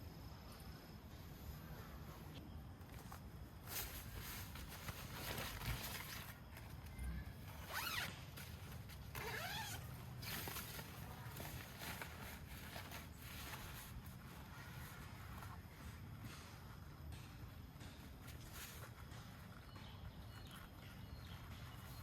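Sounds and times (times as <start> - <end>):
zipper being pulled: 7.6 - 12.0.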